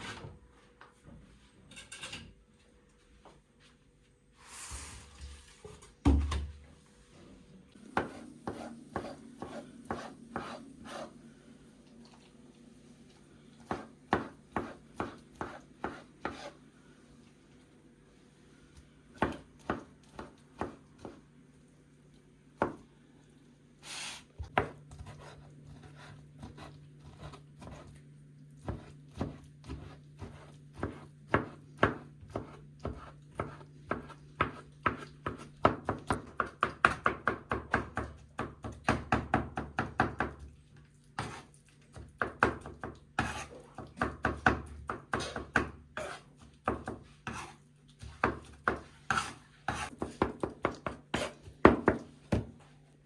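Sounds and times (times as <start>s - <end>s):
knife chopping on wooden board: 8.0s - 11.1s, 13.7s - 16.6s, 28.7s - 40.4s, 42.2s - 52.5s.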